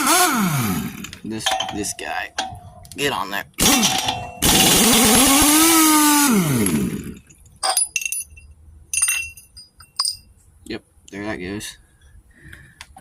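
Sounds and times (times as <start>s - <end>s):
light metallic clinks: 1.4s - 2.8s, 7.4s - 10.4s
impact wrench hammering: 3.6s - 5.6s.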